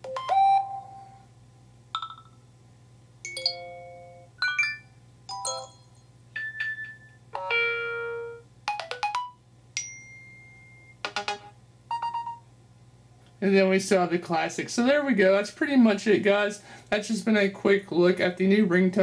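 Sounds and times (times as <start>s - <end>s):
phone alert chimes and blips: 3.3s - 7.1s, 11.9s - 12.4s.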